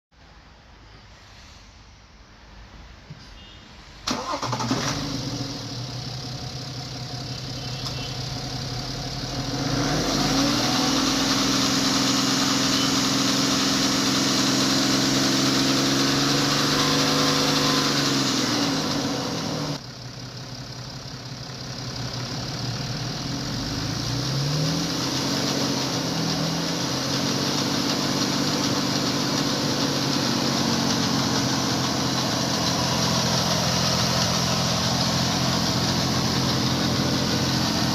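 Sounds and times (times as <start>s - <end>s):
car engine revving: 4.1s - 6.6s, 7.9s - 19.8s, 22.6s - 37.9s.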